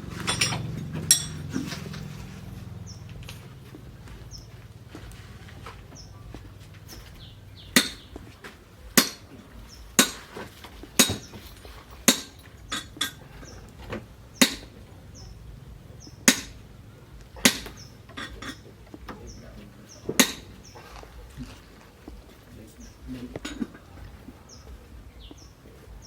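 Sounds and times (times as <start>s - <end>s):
sharp ringing strikes: 0.2s - 1.6s.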